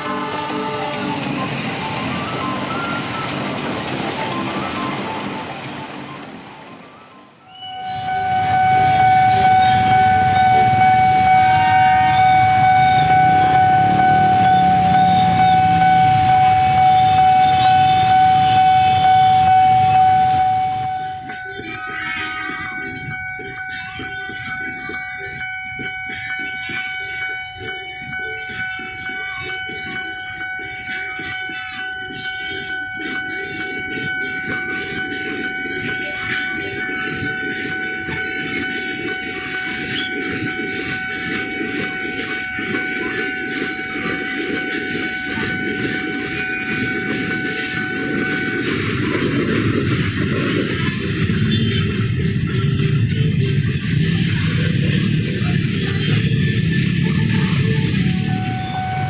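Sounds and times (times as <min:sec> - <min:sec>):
train wheels rattling on rails: 0:00.0 - 0:07.0, 0:21.2 - 0:59.0
level crossing warning tone: 0:00.0 - 0:59.0
traffic: 0:00.0 - 0:59.0
motorcycles idling: 0:08.4 - 0:20.2, 0:46.2 - 0:59.0.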